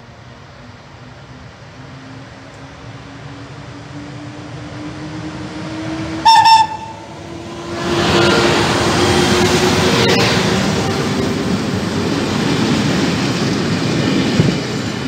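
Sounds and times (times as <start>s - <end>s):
electric locomotive hum: 0.0s - 15.0s
train horn blast: 6.2s - 11.5s.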